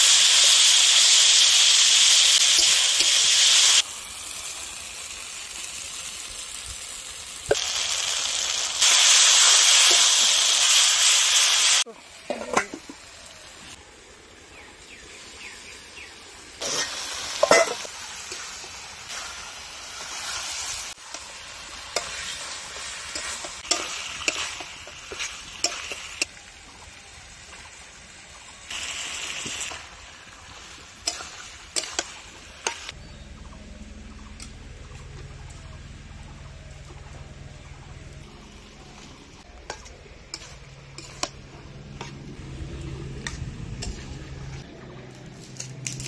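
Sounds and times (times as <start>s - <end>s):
chicken sizzling in hot oil: 0.0s - 44.8s
metal spatula scraping pan: 39.6s - 42.3s.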